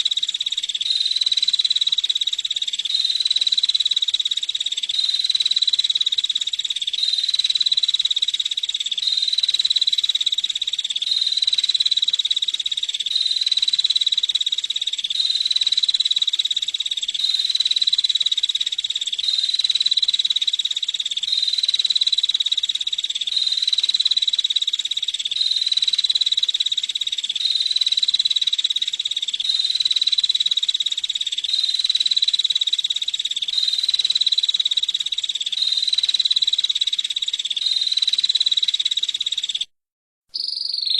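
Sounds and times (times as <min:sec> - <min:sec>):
bird calling in rapid trill: 0:19.2 - 0:39.7, 0:40.3 - 0:40.9.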